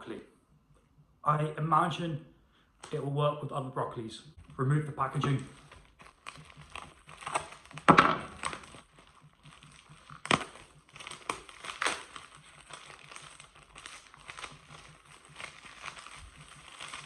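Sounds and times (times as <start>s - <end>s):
plastic packaging crinkling: 4.4s - 17.0s.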